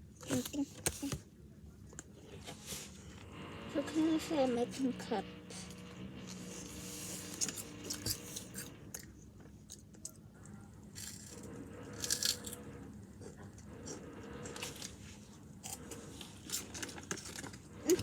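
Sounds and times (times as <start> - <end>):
chips being crunched and chewed: 10.9 - 12.6.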